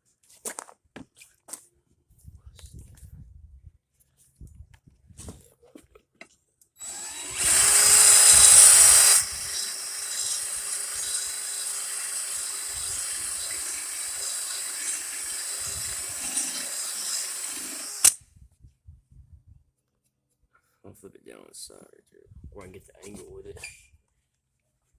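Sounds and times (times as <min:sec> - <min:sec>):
drill grinding stone on blade: 0:06.8 - 0:18.2
drill stopping click: 0:06.8 - 0:18.2.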